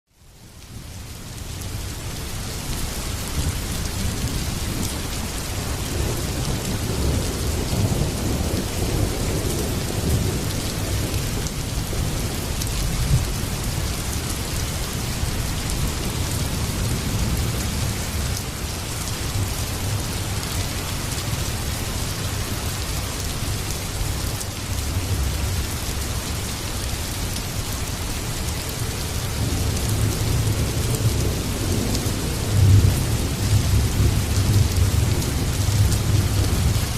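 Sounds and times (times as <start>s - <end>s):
heavy rain falling: 0.2s - 36.9s
low rumble of thunder: 3.3s - 23.0s, 28.6s - 36.9s.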